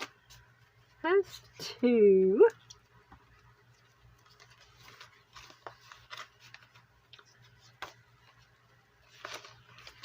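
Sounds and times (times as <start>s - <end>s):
paper rustling: 3.8s - 10.0s.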